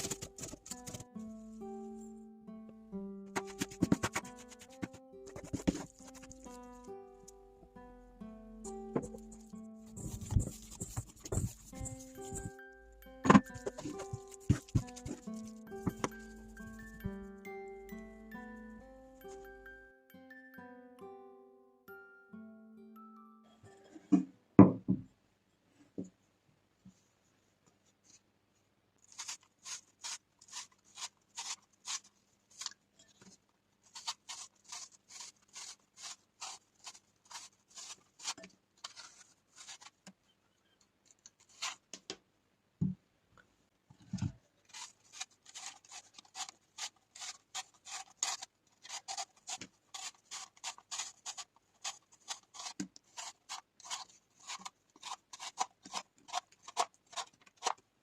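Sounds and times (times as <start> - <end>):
rhythmic rasping scrapes: 9.0 - 12.6.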